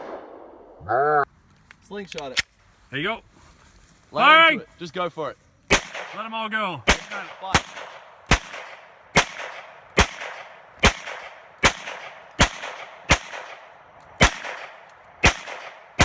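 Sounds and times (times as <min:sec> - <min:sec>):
pistol shots with echo: 0:05.7 - 0:06.2, 0:06.9 - 0:16.0.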